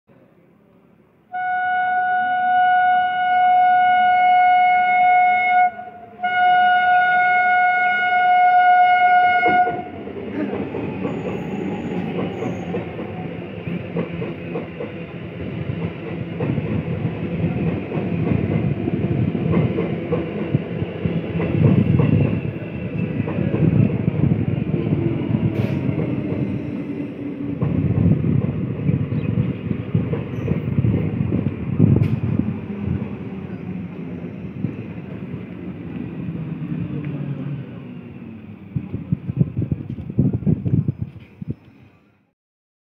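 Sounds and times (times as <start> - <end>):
train horn blasts: 1.3 - 10.0
train wheels clattering on rails: 9.4 - 36.1.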